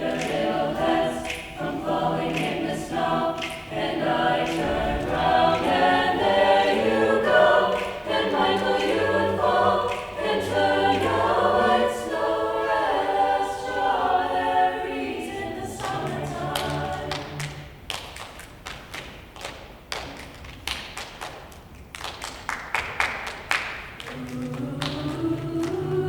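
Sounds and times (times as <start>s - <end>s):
sharp claps and thumps: 0.0s - 6.3s, 9.9s - 10.2s, 15.8s - 25.8s
choir singing a cappella: 0.0s - 17.8s, 24.0s - 26.0s.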